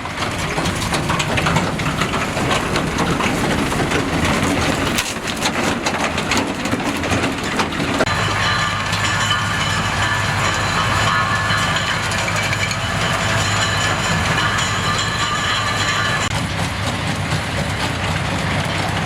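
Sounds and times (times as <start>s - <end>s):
clicks and crackles: 0.2s - 8.2s
baler machine drone with whine: 8.0s - 19.0s.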